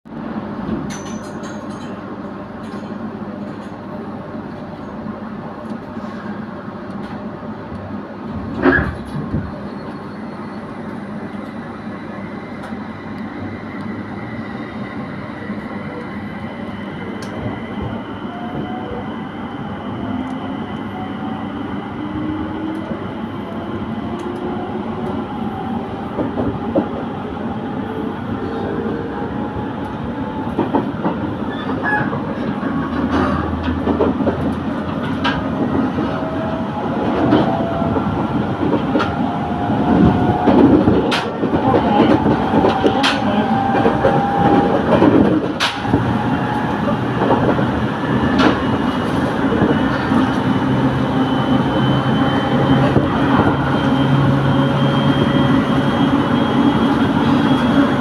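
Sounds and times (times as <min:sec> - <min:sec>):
train running with whine: 0:00.1 - 0:58.0.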